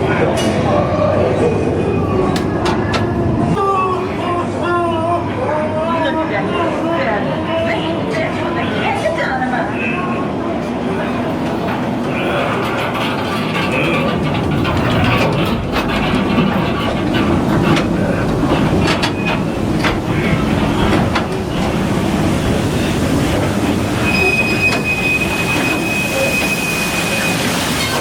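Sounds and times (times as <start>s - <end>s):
train cars rumbling on track: 9.0s - 28.0s
high wheel squeal: 24.0s - 28.0s.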